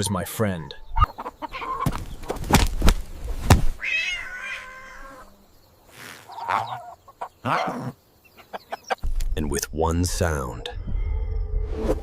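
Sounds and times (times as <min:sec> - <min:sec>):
cat meowing: 0:03.8 - 0:05.2.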